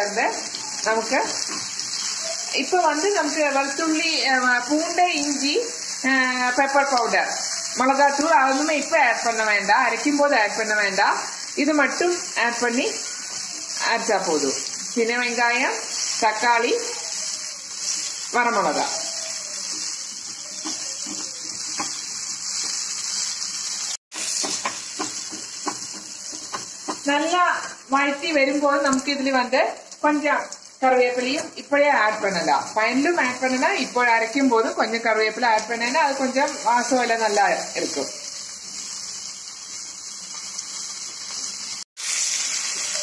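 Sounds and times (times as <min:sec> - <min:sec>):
vegetables sizzling in hot oil: 0:00.0 - 0:43.0
wooden spatula scraping a pan: 0:19.6 - 0:23.3.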